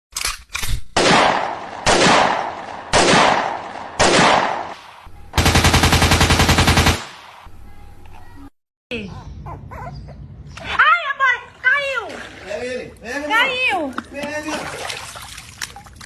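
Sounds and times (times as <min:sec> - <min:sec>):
heavy gunshot-like blasts: 0:01.0 - 0:06.2
rapid machine-gun-like rattle: 0:05.4 - 0:07.0.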